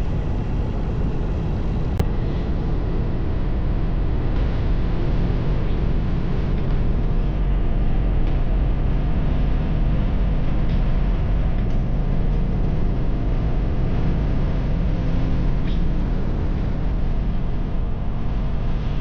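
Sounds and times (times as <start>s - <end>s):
motorcycle engine rumbling: 0.0s - 3.0s
wind noise: 0.0s - 19.0s.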